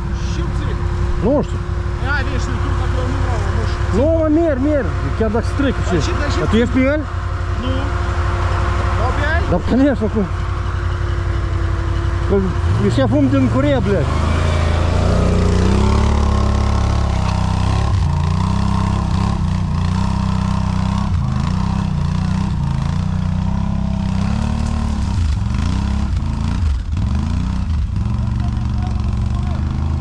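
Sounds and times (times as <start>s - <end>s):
quad bike engine revving: 0.0s - 30.0s.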